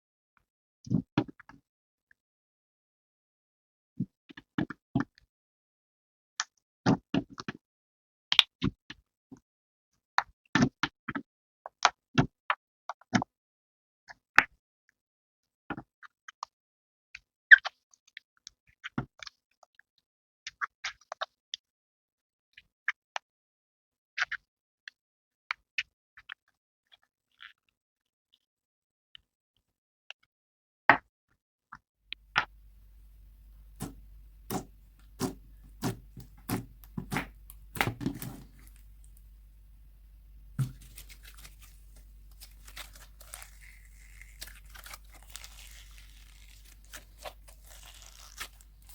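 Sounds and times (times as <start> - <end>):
sticky clicks and pops of slime: 33.8 - 38.7.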